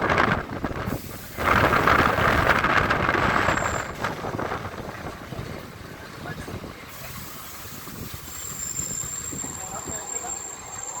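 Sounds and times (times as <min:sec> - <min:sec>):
train wheels and wind rushing: 0:00.0 - 0:11.0.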